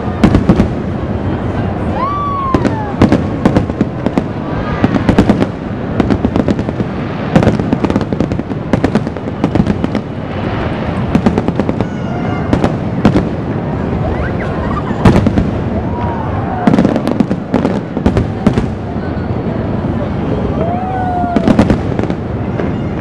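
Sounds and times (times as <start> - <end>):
fireworks bursting and crackling: 0.0 - 23.0.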